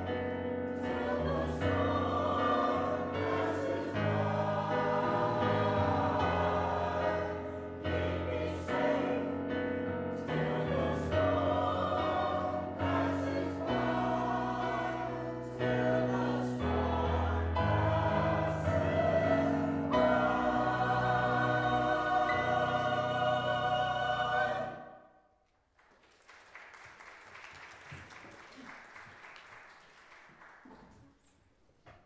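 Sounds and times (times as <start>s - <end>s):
choir singing in harmony: 0.0s - 25.1s.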